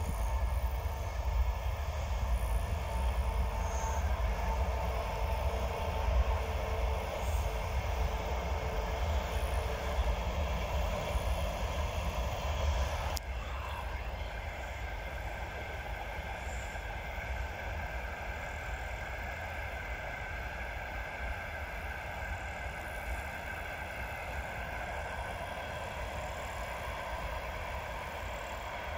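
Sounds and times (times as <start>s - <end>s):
freight train wheels on rails: 0.0s - 28.9s.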